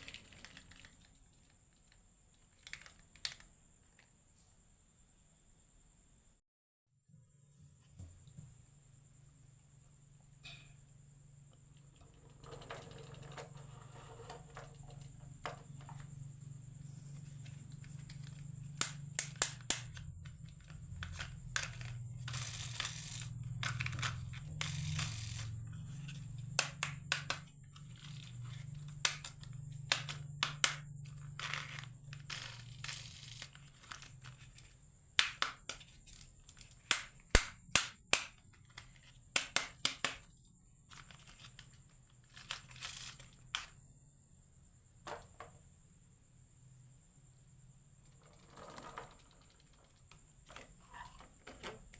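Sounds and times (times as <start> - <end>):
marbles rolling rumble: 12.0 - 16.3, 19.9 - 30.3, 30.9 - 34.5, 48.0 - 51.9.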